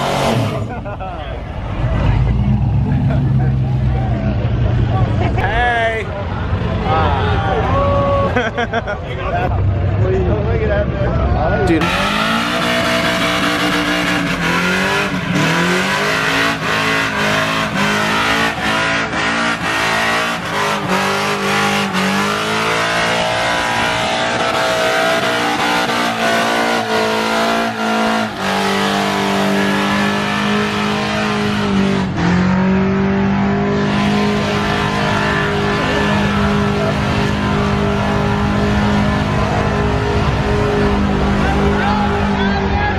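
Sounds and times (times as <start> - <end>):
car engine revving hard: 0.0 - 0.8, 11.7 - 42.4
tires squealing: 11.6 - 42.9.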